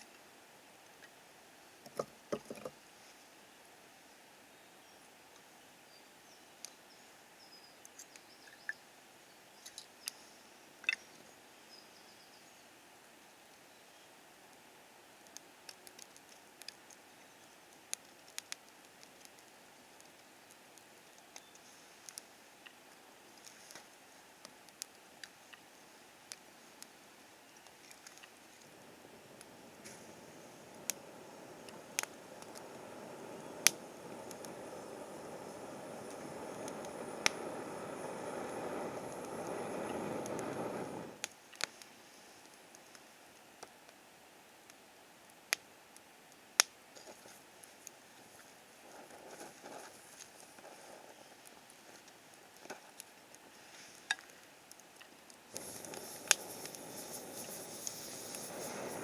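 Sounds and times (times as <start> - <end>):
faint steady hiss: 0.0 - 59.0
campfire crackling: 14.5 - 59.0
steady rushing noise: 28.6 - 41.2, 55.6 - 59.0.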